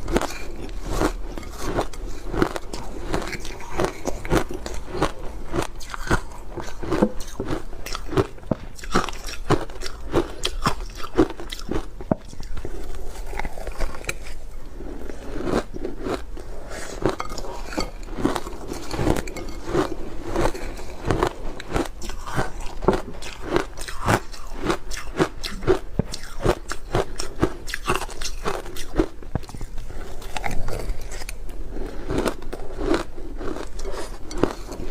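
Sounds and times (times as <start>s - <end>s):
person crunching ice: 0.0s - 34.9s.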